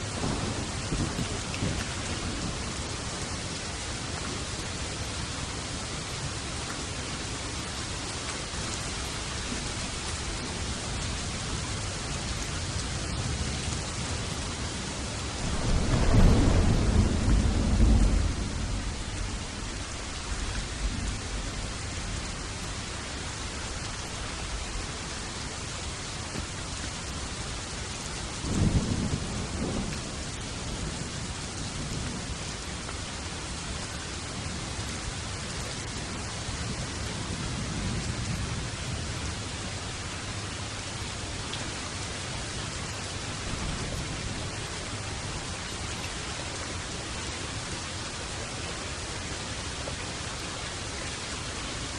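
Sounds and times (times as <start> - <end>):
rolling thunder: 0.0 - 3.5, 15.2 - 22.3, 28.4 - 32.3
heavy rain: 0.0 - 51.9.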